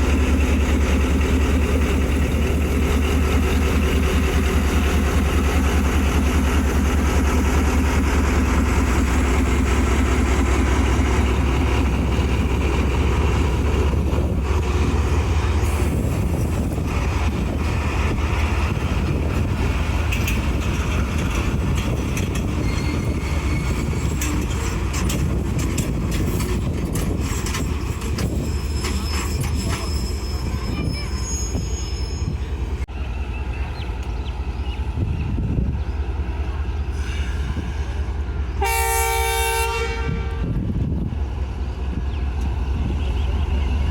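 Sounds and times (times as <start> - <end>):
train wheels clacking over rail joints: 0.0 - 30.0
diesel locomotive engine drone: 0.0 - 43.9
high wheel squeals: 22.4 - 24.9, 27.2 - 32.7.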